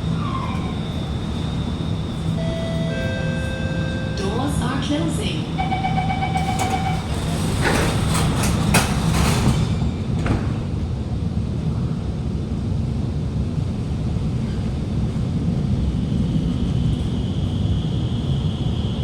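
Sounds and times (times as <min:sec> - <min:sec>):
train rumble: 0:00.0 - 0:19.0
train doors knocking shut: 0:05.6 - 0:10.9.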